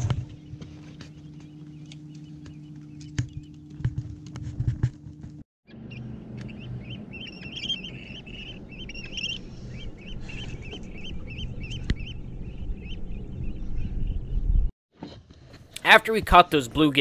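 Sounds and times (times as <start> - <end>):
birds chirping calls: 0.0 - 4.4, 5.7 - 14.7
low steady hum: 0.0 - 14.7.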